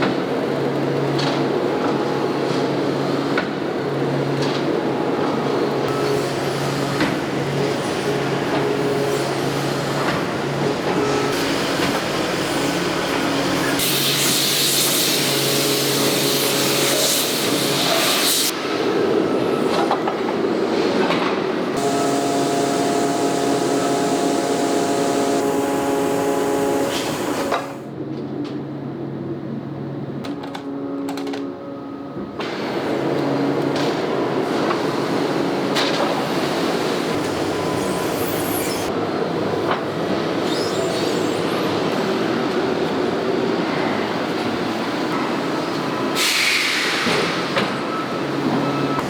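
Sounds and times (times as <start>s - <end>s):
industrial machinery humming and whining: 0.0s - 49.0s.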